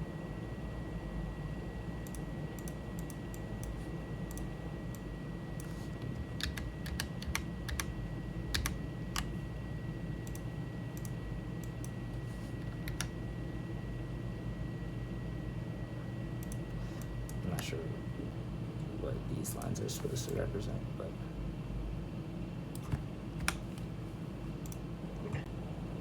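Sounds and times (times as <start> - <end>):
keyboard and mouse clicking: 2.0 - 7.9, 8.5 - 9.3, 10.2 - 12.0, 12.6 - 13.2, 16.4 - 17.4, 22.8 - 23.6.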